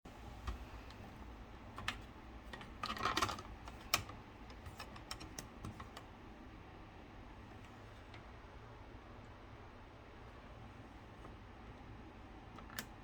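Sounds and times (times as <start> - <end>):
air conditioner clicking: 0.1 - 6.6, 7.4 - 8.6, 10.4 - 13.0
low steady hum: 0.1 - 13.0.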